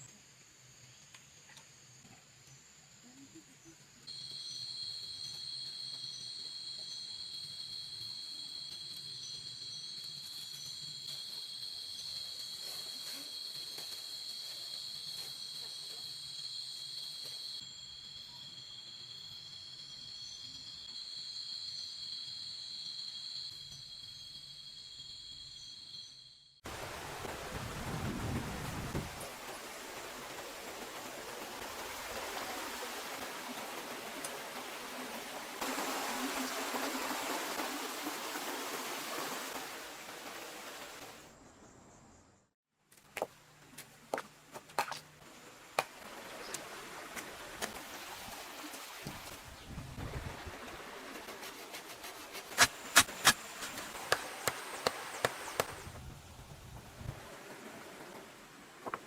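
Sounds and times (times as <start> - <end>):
insects trilling: 0.6 - 26.6
water rushing: 26.7 - 41.3, 45.2 - 55.9.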